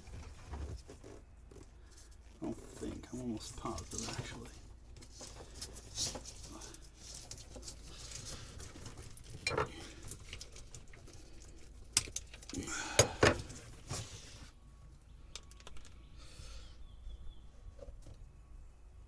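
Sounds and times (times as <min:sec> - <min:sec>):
small hard parts clicking and rattling: 0:00.0 - 0:14.1, 0:15.3 - 0:16.1.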